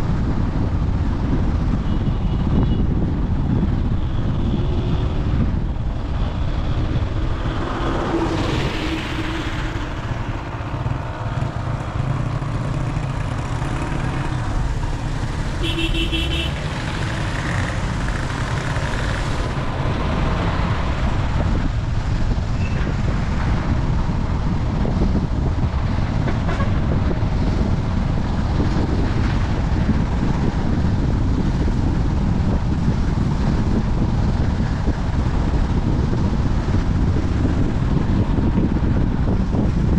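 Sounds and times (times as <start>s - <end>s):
road rumble: 0.0s - 39.9s
wind noise: 0.0s - 39.9s
vehicle horn toot: 15.6s - 16.6s.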